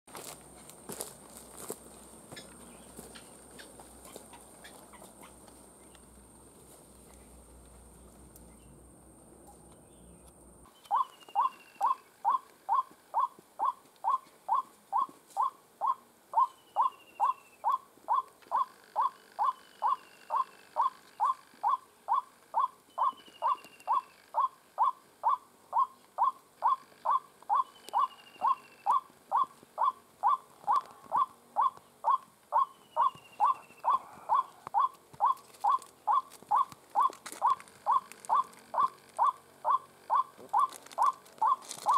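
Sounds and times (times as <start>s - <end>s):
waterhen short repeated calls: 10.7s - 41.9s.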